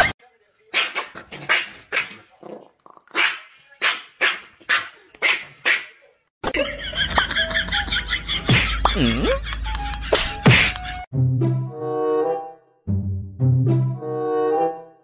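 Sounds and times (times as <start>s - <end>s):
small dog barking: 3.1s - 6.0s
music: 7.5s - 15.0s
sharp thwack: 10.2s - 10.8s.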